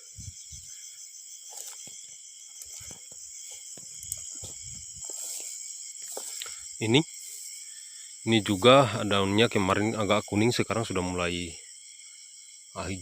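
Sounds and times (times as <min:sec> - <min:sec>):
footsteps rustling through garden: 0:00.0 - 0:07.6
crickets and insects chirring: 0:00.0 - 0:13.0.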